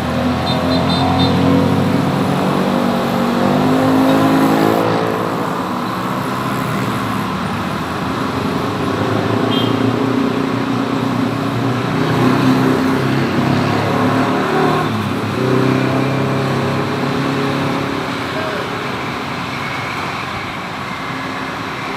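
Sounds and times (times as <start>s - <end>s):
road traffic noise: 0.0s - 21.9s.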